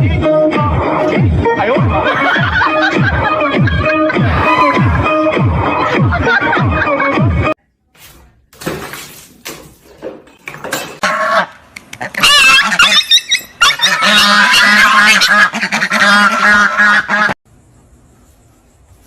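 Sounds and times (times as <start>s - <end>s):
honking animal calls: 11.0s - 17.4s.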